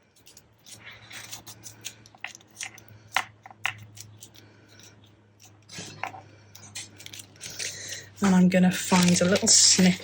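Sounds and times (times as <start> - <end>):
paper rustling: 5.7 - 10.0.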